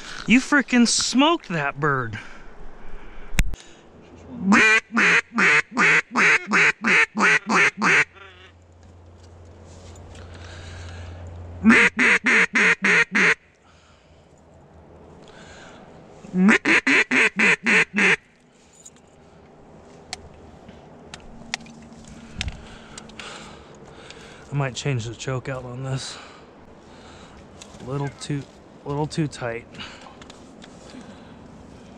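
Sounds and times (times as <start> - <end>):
duck quacking: 4.4 - 8.5, 11.6 - 13.4, 16.4 - 18.2.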